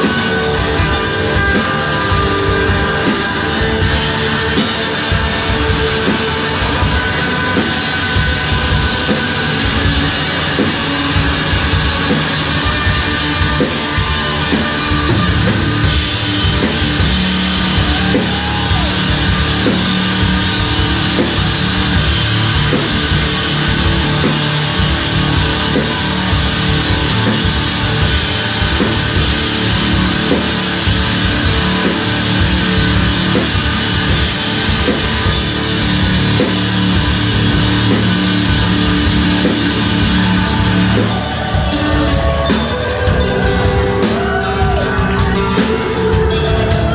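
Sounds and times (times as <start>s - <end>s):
rock band playing live: 0.0s - 46.9s.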